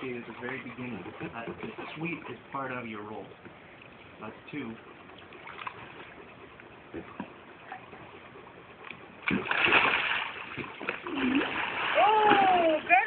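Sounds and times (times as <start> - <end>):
water lapping: 0.0 - 13.0
loud splash of kayak rolling: 9.3 - 13.0.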